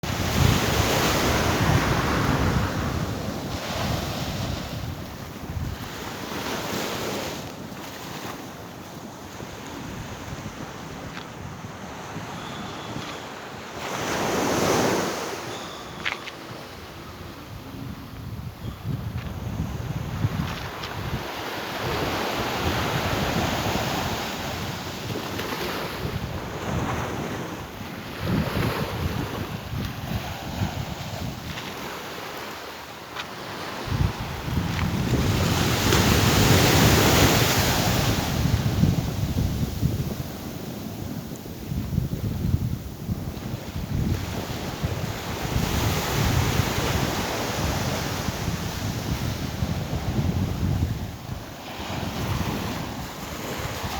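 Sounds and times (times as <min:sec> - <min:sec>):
sea surf rushing: 0:00.0 - 0:08.6, 0:19.8 - 0:43.2, 0:43.8 - 0:53.9
wind buffeting microphone: 0:00.0 - 0:32.2, 0:33.5 - 0:53.9.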